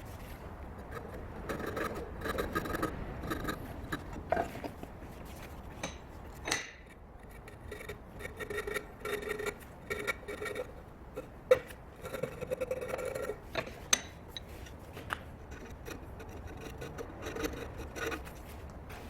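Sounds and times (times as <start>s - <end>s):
file rasping on steel axe head: 0.8s - 4.6s, 6.8s - 13.4s, 15.4s - 18.5s.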